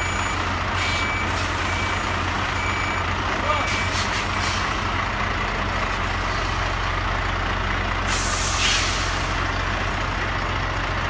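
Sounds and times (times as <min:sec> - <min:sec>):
truck diesel engine running: 0:00.0 - 0:11.0
air brakes hissing: 0:03.7 - 0:04.8, 0:08.0 - 0:09.4.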